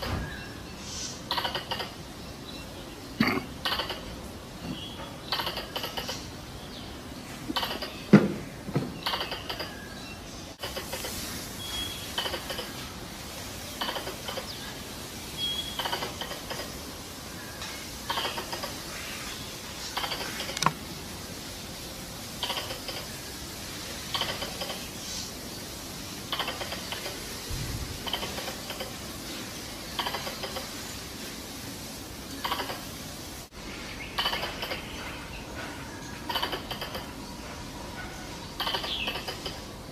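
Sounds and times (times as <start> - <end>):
squirrel chattering: 1.3 - 2.0, 3.2 - 4.2, 5.3 - 6.3, 7.5 - 8.0, 9.0 - 9.8, 12.2 - 12.8, 13.8 - 14.6, 15.8 - 16.8, 18.1 - 18.8, 19.9 - 20.7, 22.4 - 23.1, 24.1 - 24.9, 26.3 - 27.2, 28.0 - 29.0, 30.0 - 30.7, 32.4 - 32.9, 34.1 - 34.9, 36.2 - 37.2, 38.6 - 39.7.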